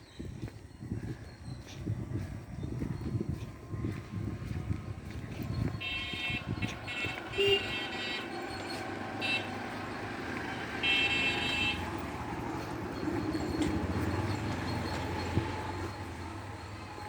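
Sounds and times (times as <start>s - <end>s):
low traffic rumble: 0.0s - 17.0s
vehicle horn blasts: 5.7s - 9.8s, 10.4s - 12.1s.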